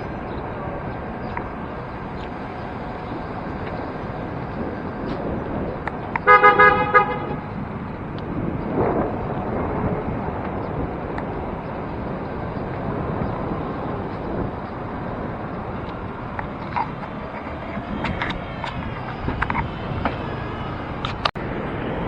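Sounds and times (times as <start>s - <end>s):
road traffic noise: 0.0s - 22.0s
vehicle passing: 0.0s - 22.0s
vehicle horn honking: 6.2s - 7.6s.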